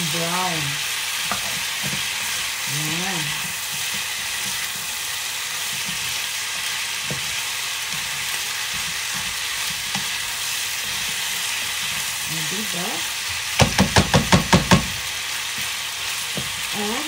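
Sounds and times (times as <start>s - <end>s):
food sizzling in frying pan: 0.0s - 17.0s
spatula tapping pan: 13.5s - 16.6s.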